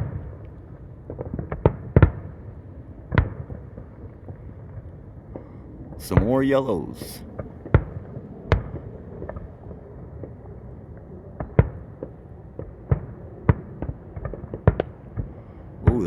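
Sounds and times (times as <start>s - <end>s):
faint steady background noise: 0.0s - 16.0s
fireworks bursting bangs: 6.0s - 7.2s.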